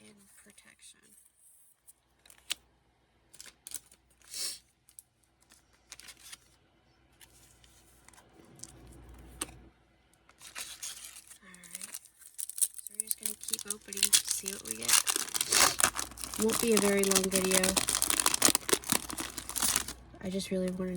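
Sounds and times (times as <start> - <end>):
cards sliding into plastic sleeves: 5.4 - 6.5
scraping rustle: 10.4 - 19.9.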